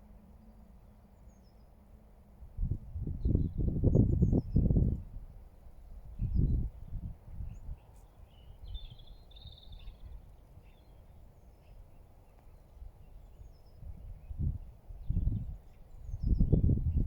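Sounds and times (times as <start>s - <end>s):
wind buffeting microphone: 2.5s - 7.9s, 13.7s - 17.0s
faint bird chirps: 7.4s - 16.7s.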